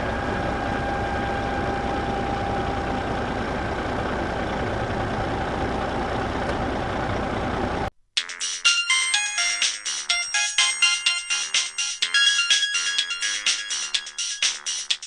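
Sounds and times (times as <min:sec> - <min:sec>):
truck engine idling: 0:00.0 - 0:07.9.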